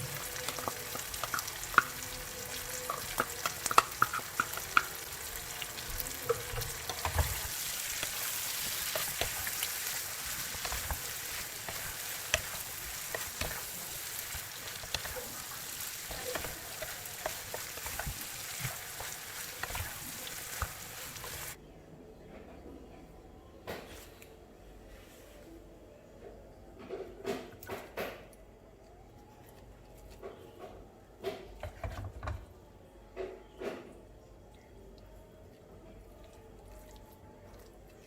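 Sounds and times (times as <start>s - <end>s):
food sizzling in a pan: 0.0s - 21.6s
spatula scraping a pan: 6.3s - 21.6s.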